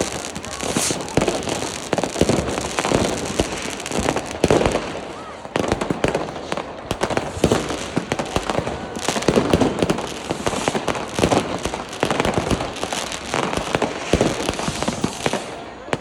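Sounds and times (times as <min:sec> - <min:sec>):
fireworks banging and crackling: 0:00.0 - 0:16.0.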